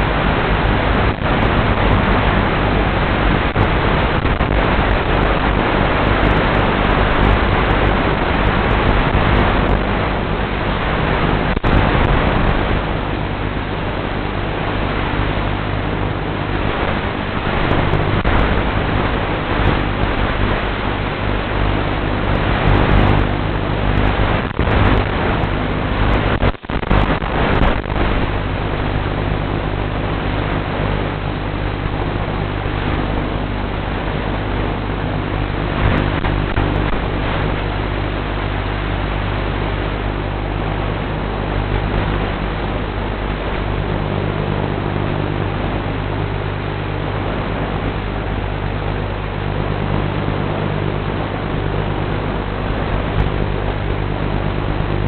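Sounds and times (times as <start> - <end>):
low steady hum: 0.0 - 55.0
static hiss: 0.0 - 55.0.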